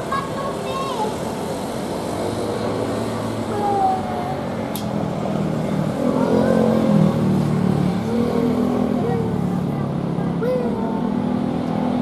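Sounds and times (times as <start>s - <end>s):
voices: 0.0s - 1.5s, 3.4s - 11.3s
jet engine drone: 0.0s - 10.2s.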